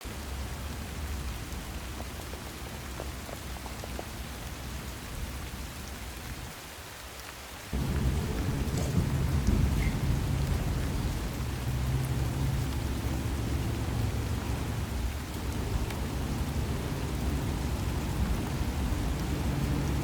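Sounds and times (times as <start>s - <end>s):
steady rain falling: 0.0s - 20.0s
water drips ticking: 7.2s - 20.0s
low rumble of thunder: 7.7s - 20.0s.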